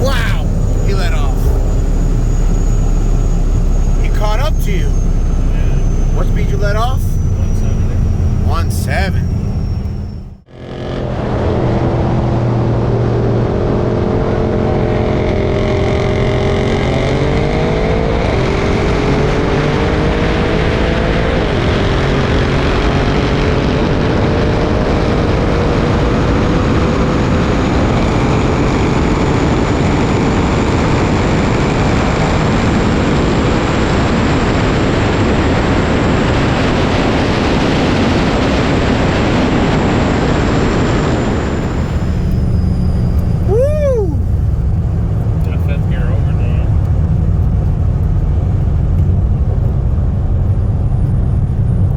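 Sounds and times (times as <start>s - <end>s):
wind and road rush: 0.0s - 51.9s
car accelerating through gears: 41.2s - 48.4s.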